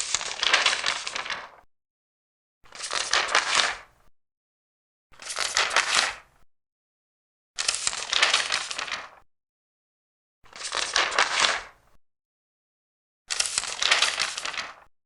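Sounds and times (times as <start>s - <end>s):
paper pages turning: 0.0s - 1.6s, 2.7s - 3.8s, 5.2s - 6.2s, 7.6s - 9.2s, 10.6s - 11.7s, 13.3s - 14.9s.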